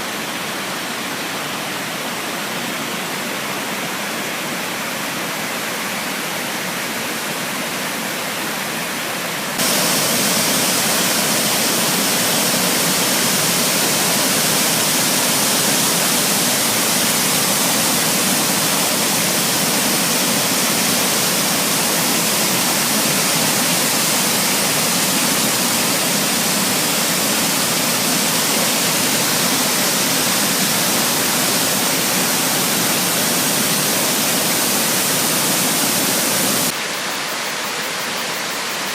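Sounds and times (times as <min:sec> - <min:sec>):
water rushing over rocks: 0:09.6 - 0:36.8.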